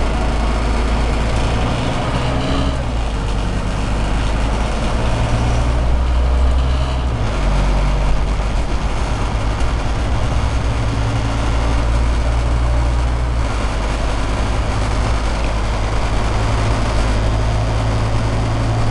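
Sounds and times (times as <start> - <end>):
bus diesel engine drone: 0.0 - 18.9.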